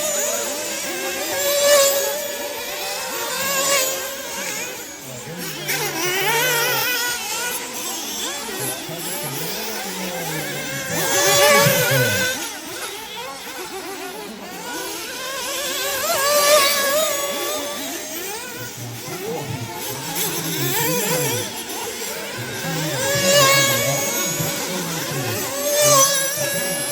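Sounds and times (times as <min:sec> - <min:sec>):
model car engines revving: 0:00.0 - 0:26.9.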